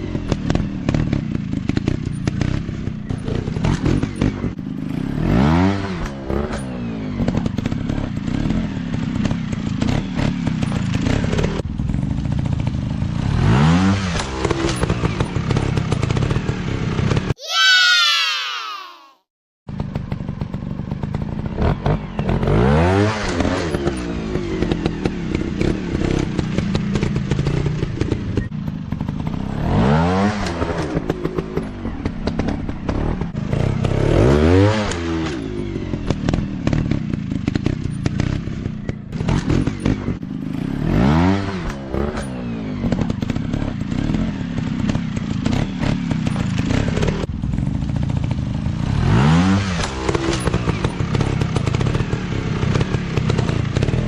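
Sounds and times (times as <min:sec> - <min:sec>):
dirt bike engines revving: 0:20.9 - 0:54.0.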